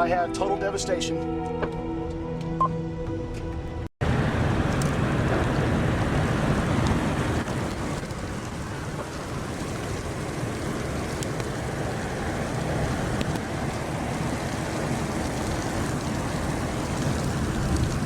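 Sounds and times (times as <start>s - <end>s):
rain: 4.0s - 18.0s
storm wind: 4.0s - 18.0s.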